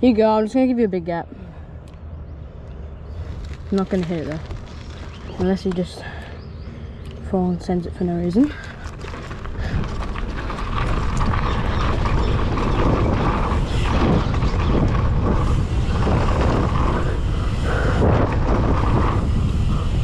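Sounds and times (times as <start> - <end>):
wind buffeting microphone: 0.0 - 20.0
bike tyres rumbling on dirt: 3.1 - 6.6, 7.9 - 20.0.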